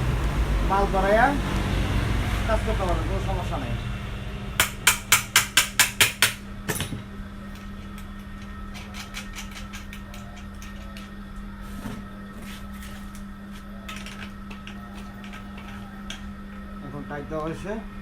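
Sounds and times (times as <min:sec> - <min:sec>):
sharp metal knocks: 0:04.6 - 0:07.0.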